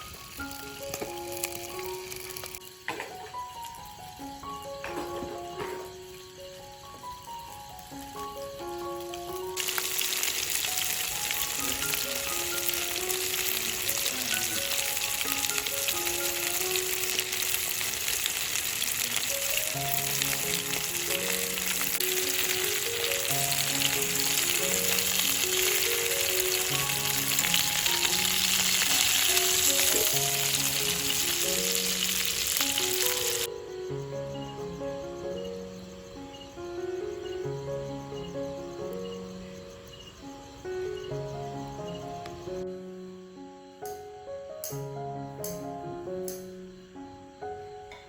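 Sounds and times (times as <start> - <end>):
food sizzling in hot oil: 0.0 - 34.0.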